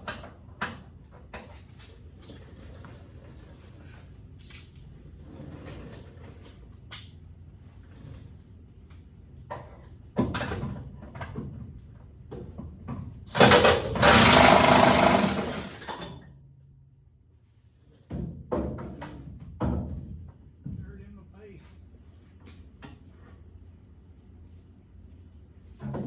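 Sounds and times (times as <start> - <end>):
impact wrench burst: 13.4 - 16.0.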